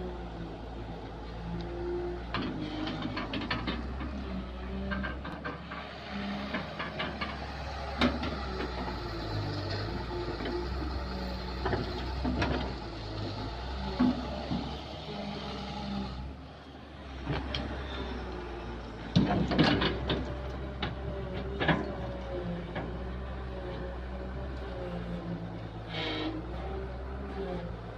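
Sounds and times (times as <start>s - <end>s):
excavator diesel engine running: 0.0s - 27.9s
sharp clanks and knocks: 2.2s - 10.8s, 11.6s - 12.8s, 19.0s - 23.1s.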